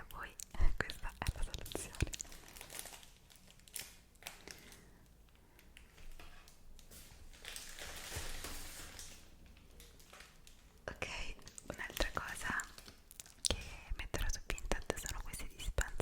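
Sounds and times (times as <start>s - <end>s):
light clicks and taps: 0.0s - 2.3s, 11.4s - 16.0s.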